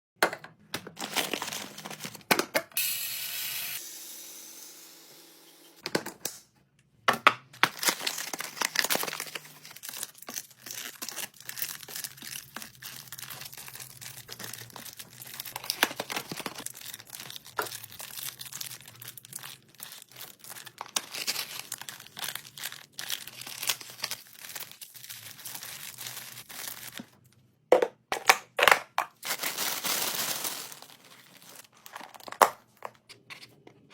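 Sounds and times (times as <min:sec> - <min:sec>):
items clicking and knocking: 0:00.2 - 0:02.8, 0:05.8 - 0:13.5, 0:26.9 - 0:33.9
packaging crinkling and tearing: 0:00.9 - 0:02.3, 0:07.6 - 0:27.2, 0:29.1 - 0:32.4.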